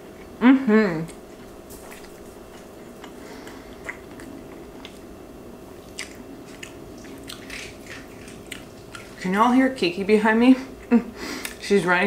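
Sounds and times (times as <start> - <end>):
steady low hum: 0.0 - 12.0
quiet chewing: 1.0 - 5.1, 5.8 - 9.6, 10.7 - 11.6.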